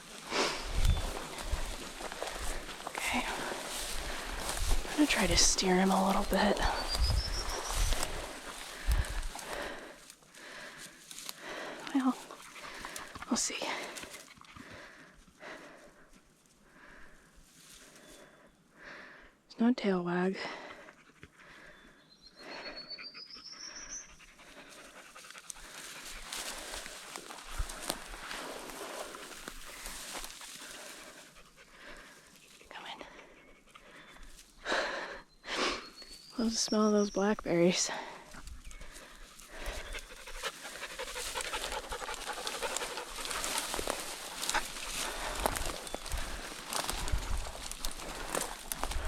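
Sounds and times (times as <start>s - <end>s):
dog panting: 11.4s - 15.7s, 24.0s - 32.3s, 39.4s - 48.6s.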